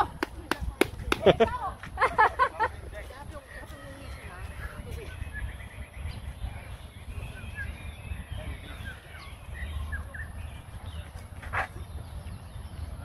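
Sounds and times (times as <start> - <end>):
bird chirps: 3.6 - 13.0.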